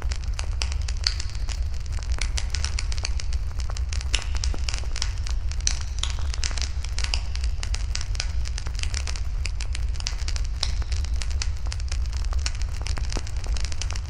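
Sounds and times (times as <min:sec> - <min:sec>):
low fire rumble: 0:00.0 - 0:14.0
wood fire crackling and popping: 0:00.0 - 0:14.0.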